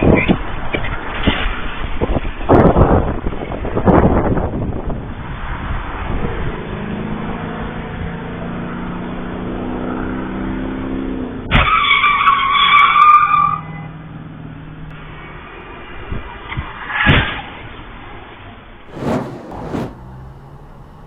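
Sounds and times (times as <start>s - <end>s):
car engine humming: 18.9s - 21.0s.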